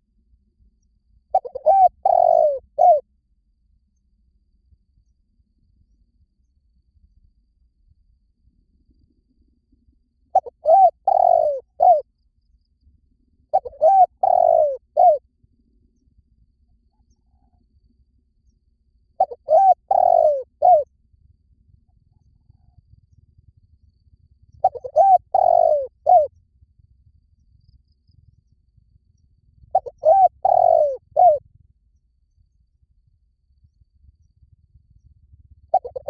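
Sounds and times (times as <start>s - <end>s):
dove cooing: 1.3s - 3.0s, 10.4s - 12.0s, 13.5s - 15.2s, 19.2s - 20.9s, 24.6s - 26.3s, 29.7s - 31.4s, 35.7s - 36.0s.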